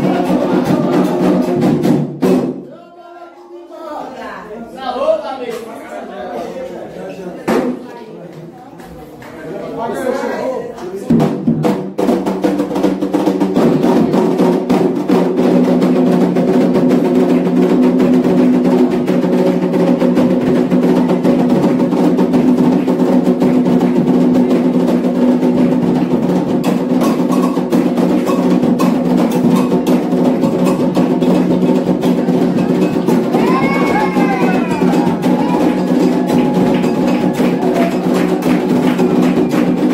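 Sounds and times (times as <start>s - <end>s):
sharp wood-block-like strikes: 0.0s - 2.6s, 11.1s - 39.9s
hand drums in fast rhythm: 0.0s - 2.7s, 11.0s - 39.9s.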